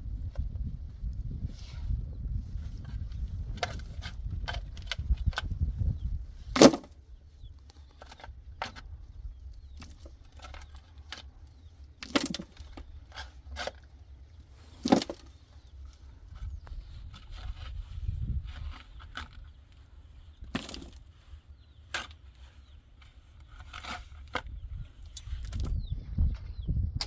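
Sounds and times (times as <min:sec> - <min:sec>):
low rumble: 0:00.0 - 0:03.6
clicks and knocks of handling: 0:07.6 - 0:08.9, 0:09.6 - 0:13.9, 0:20.4 - 0:21.1.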